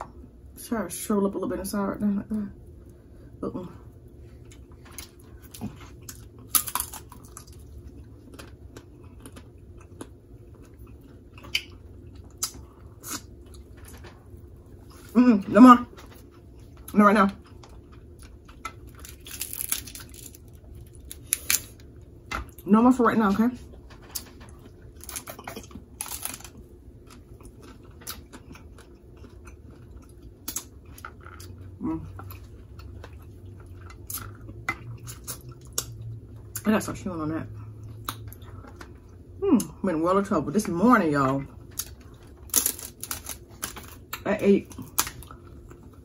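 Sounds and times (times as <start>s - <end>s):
soft eating noises: 0.0s - 46.0s
chewing: 4.2s - 15.2s, 15.9s - 21.8s, 23.9s - 36.7s
crab shell cracking: 18.7s - 21.8s, 25.0s - 26.6s, 41.8s - 44.2s.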